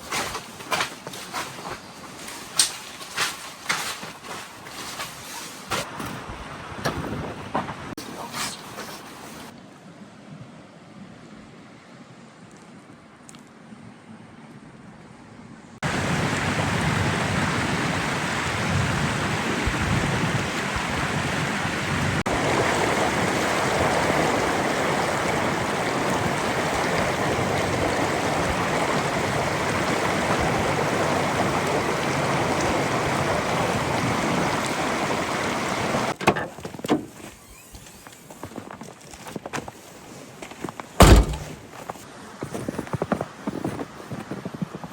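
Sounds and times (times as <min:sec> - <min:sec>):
sharp knocks: 0:41.0 - 0:41.6.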